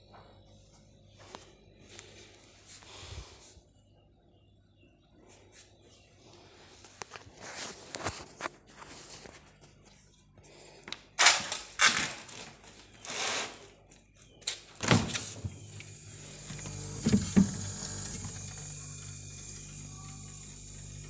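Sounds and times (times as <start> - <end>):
refrigerator compressor humming: 15.1 - 21.0.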